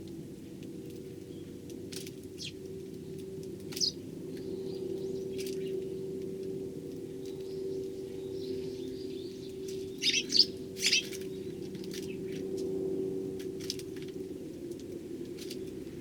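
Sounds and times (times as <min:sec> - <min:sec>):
steady low hum: 0:00.0 - 0:16.0
sparrows chirping: 0:00.4 - 0:06.2, 0:07.0 - 0:12.6.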